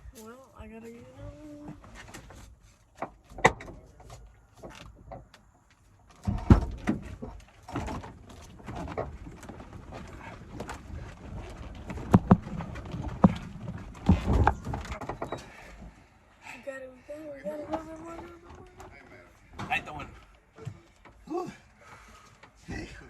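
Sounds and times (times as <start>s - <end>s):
knocks and thumps: 1.7s - 5.5s, 6.1s - 16.0s, 17.7s - 21.3s.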